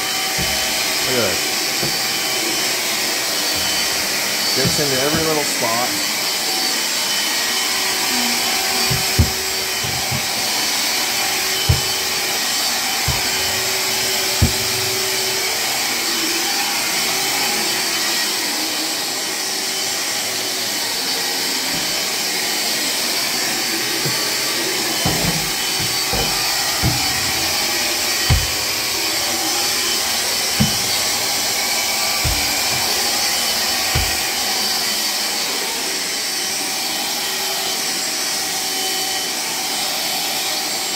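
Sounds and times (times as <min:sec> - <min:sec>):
cordless vacuum cleaner running: 0:00.0 - 0:40.9
short knocks: 0:00.4 - 0:01.0, 0:01.8 - 0:02.2, 0:03.5 - 0:05.6, 0:08.8 - 0:12.4, 0:13.0 - 0:15.2, 0:25.0 - 0:34.4.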